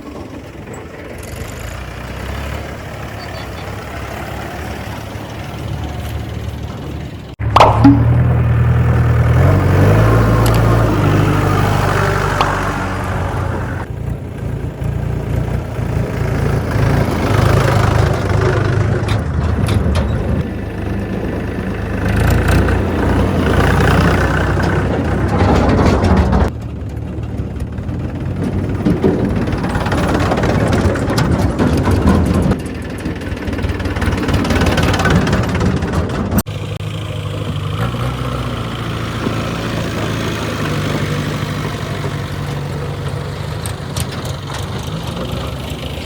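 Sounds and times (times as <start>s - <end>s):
diesel machinery engines running: 0.0s - 46.0s
sharp knocks: 7.4s - 8.7s.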